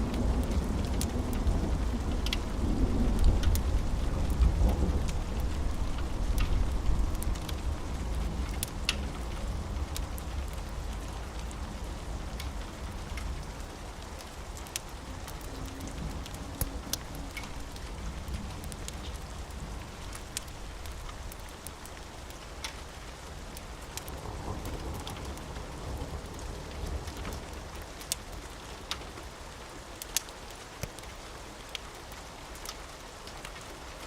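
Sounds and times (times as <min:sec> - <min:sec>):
rain falling: 0:00.0 - 0:34.0
sharp ticks and pops: 0:30.0 - 0:31.1.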